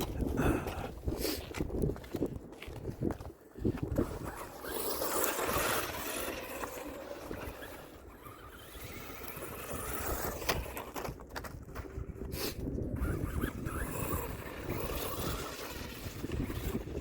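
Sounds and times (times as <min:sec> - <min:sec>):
tyres scraping dirt: 0:00.0 - 0:17.0
toy truck electric motor: 0:04.0 - 0:17.0.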